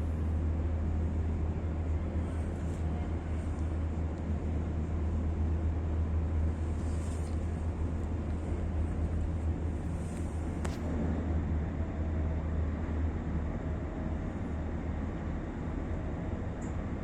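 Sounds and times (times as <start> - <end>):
ferry engines droning: 0.0 - 17.0.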